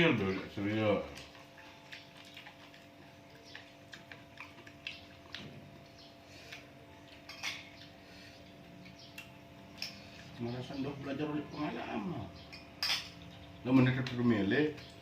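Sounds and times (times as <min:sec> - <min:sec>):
cutlery clicking against dishes: 0:07.1 - 0:07.9.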